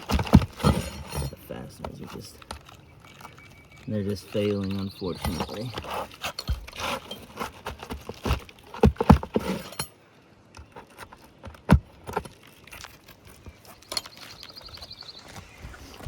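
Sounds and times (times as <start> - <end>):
metal pry tool scraping shingles: 0.0 - 10.0.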